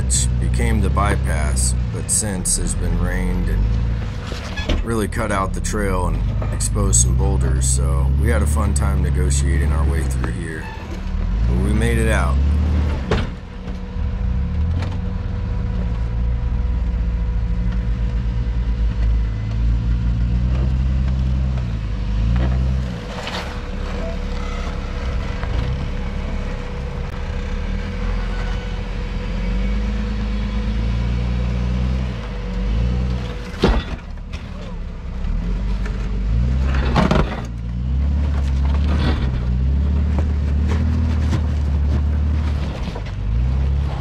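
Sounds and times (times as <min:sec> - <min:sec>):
engine running at low revs: 0:00.0 - 0:44.0.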